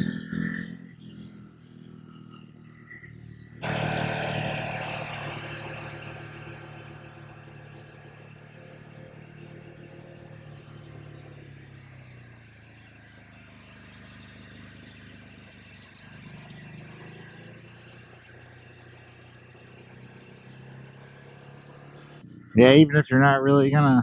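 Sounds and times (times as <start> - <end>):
motorcycle engine running: 3.6 - 22.4.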